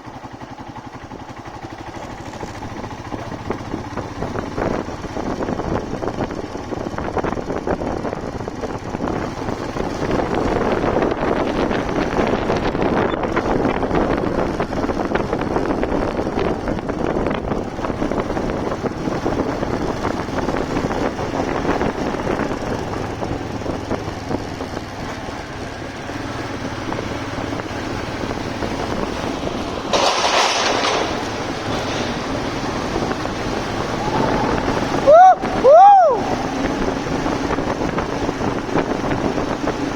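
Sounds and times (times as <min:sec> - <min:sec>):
motorcycle wind and engine noise: 0:00.0 - 0:39.9.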